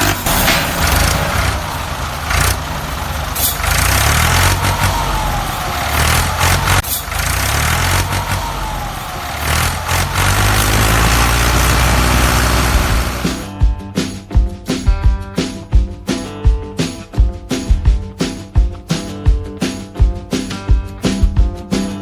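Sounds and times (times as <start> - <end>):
sharp knocks: 0.0 - 1.3
motor rumbling: 0.0 - 13.5.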